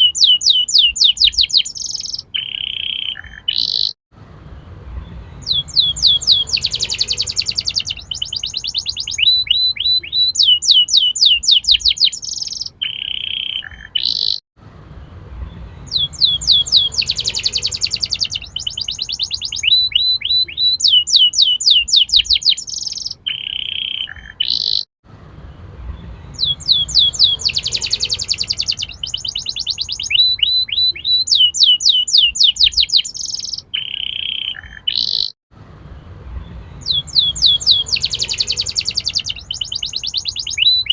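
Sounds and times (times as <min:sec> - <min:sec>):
canary singing in trills: 0:00.0 - 0:04.0, 0:04.8 - 0:14.4, 0:15.4 - 0:24.9, 0:25.8 - 0:35.4, 0:36.2 - 0:40.9.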